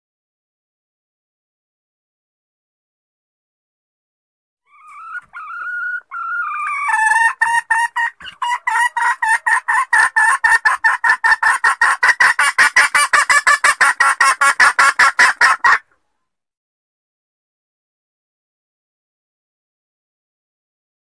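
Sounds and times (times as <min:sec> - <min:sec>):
junglefowl hen clucking: 0:04.7 - 0:16.1.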